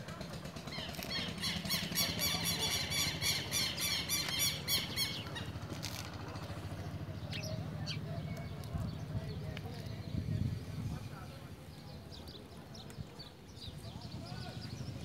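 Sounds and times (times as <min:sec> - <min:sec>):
bird chirping rapidly: 0:00.6 - 0:05.8.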